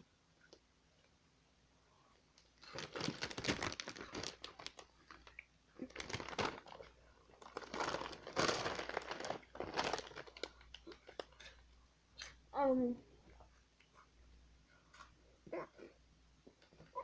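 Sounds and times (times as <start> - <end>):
plastic snack bag crinkling: 2.4 - 11.6.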